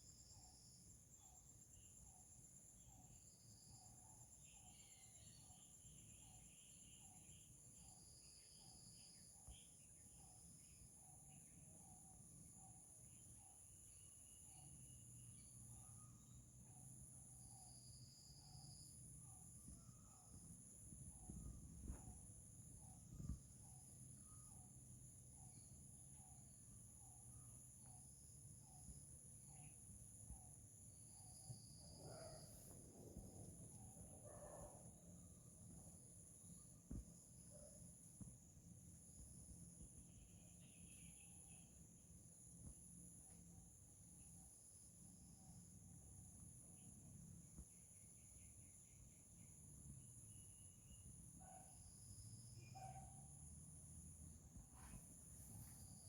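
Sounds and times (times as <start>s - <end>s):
bird chirps: 0.0s - 35.8s
insects trilling: 0.0s - 56.0s.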